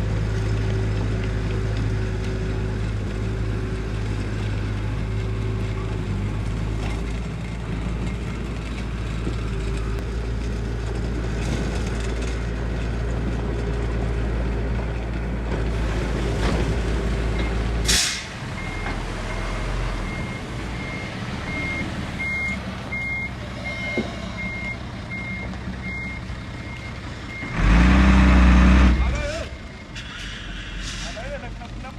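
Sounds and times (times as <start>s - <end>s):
truck diesel engine running: 0.0s - 31.9s
air brake hiss: 17.8s - 18.4s, 30.0s - 31.3s
reversing alarm beeping: 18.6s - 27.6s.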